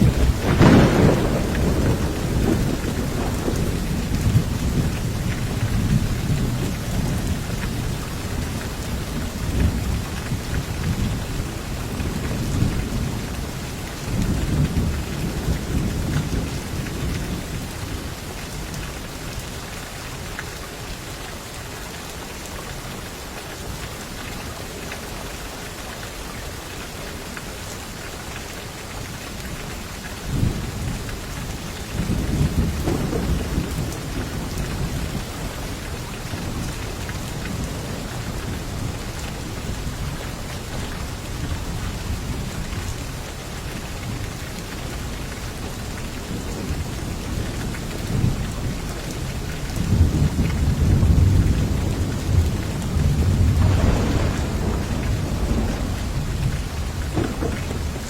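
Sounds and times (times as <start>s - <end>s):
low thunder rumbling: 0.0s - 18.3s, 30.2s - 42.8s, 46.2s - 58.0s
heavy rain hissing: 0.0s - 19.3s, 28.9s - 58.0s.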